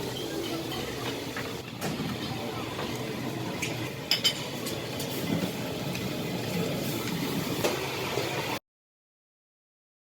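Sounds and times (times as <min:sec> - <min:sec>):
dining area background noise: 0:00.0 - 0:08.6
tableware clinking: 0:03.5 - 0:05.2.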